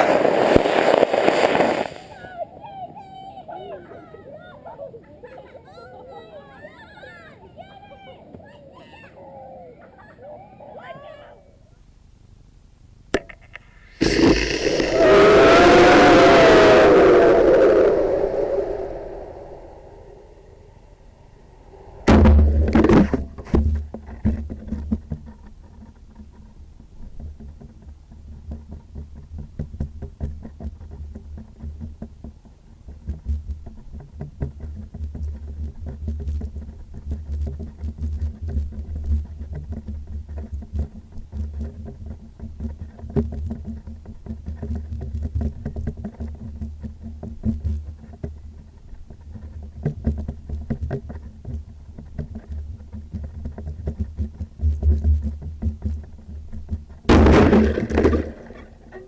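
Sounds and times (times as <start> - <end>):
wind buffeting microphone: 14.1 - 23.4.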